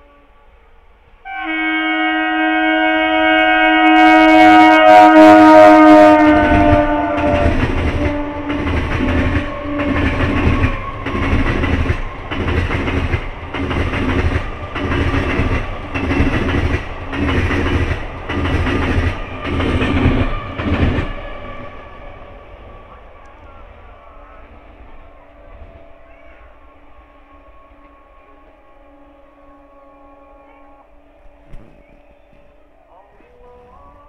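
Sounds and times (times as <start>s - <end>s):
train horn: 0.0s - 17.8s, 18.4s - 34.0s
train wheels clattering over rail joints: 6.4s - 21.2s.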